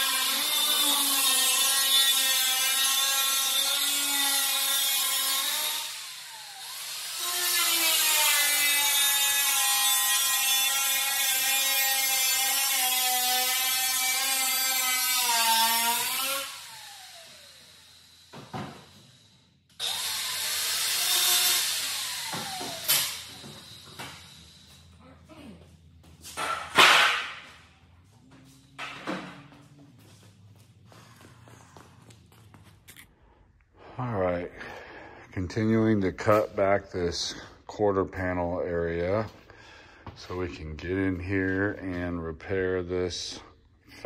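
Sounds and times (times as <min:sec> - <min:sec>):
power cutting tool cutting sheet metal: 0:00.0 - 0:24.9, 0:26.4 - 0:27.6.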